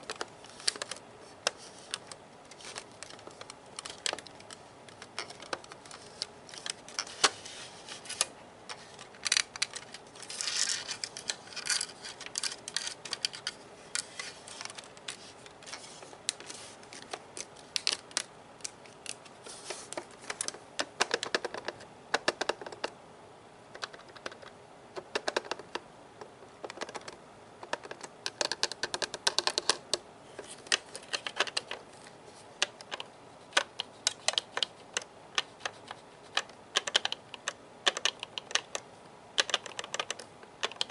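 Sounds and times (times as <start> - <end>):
scratching on plastic: 0.0 - 22.8.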